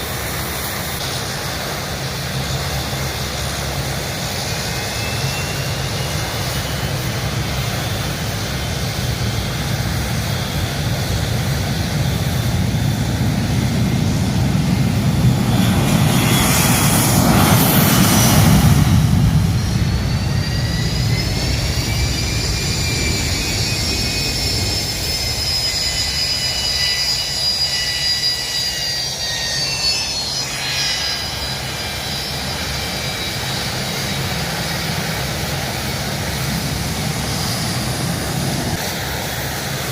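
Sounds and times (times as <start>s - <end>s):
aircraft engine passing: 0.0s - 39.9s
high engine whine: 0.0s - 39.9s.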